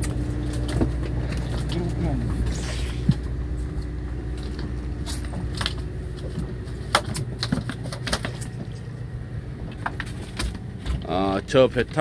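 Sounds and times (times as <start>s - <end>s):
boat machinery drone: 0.0s - 12.0s.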